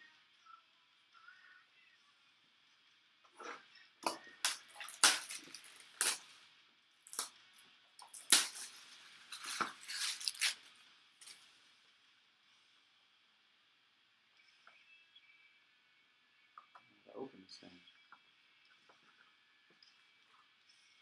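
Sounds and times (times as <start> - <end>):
packaging crinkling and crackling: 4.5 - 6.4, 8.0 - 11.4.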